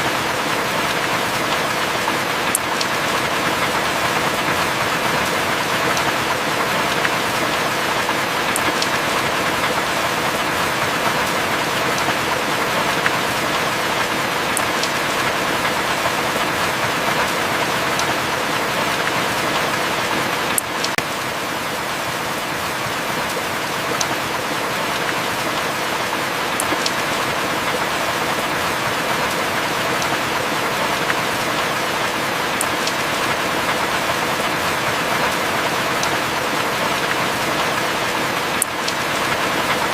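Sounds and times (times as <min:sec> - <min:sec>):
heavy rain: 0:00.0 - 0:39.9
drip ticks: 0:02.5 - 0:02.9.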